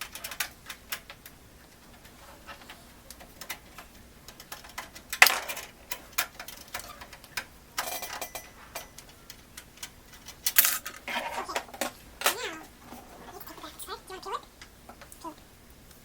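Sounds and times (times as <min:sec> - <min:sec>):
computer parts and screws rattling: 0:00.0 - 0:12.4.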